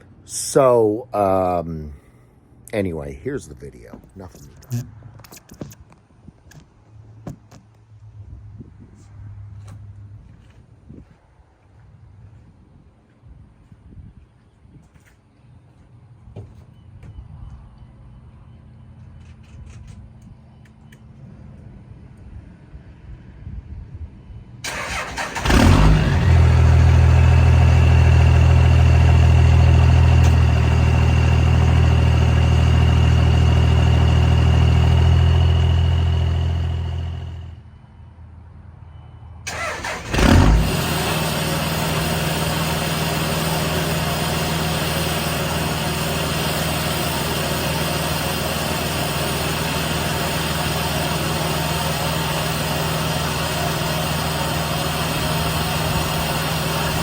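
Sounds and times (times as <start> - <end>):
diesel engine cranking and starting: 24.6 - 37.6, 39.5 - 57.0
diesel engine idling: 24.6 - 37.6, 39.5 - 57.0
engine winding down: 24.6 - 37.6, 39.5 - 57.0.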